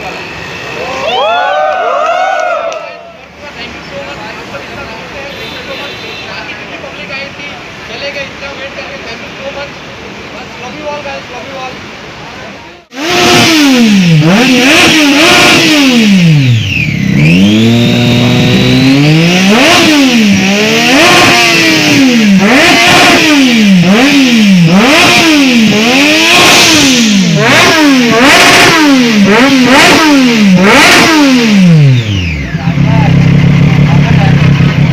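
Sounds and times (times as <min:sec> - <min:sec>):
motorcycle engine revving: 0:12.8 - 0:34.9.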